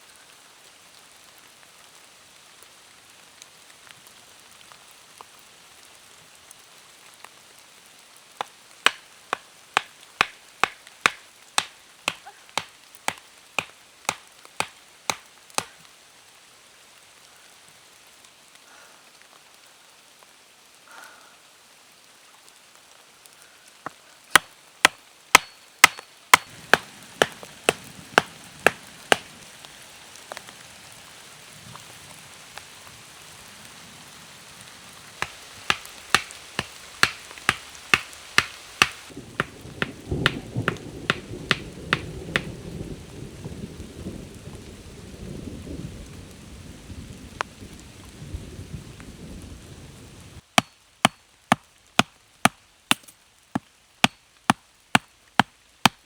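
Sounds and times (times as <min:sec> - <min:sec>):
rain hiss: 0:00.0 - 0:55.9
wood chopping strikes: 0:08.8 - 0:15.8, 0:24.3 - 0:29.3, 0:35.2 - 0:42.5, 0:50.6 - 0:56.0.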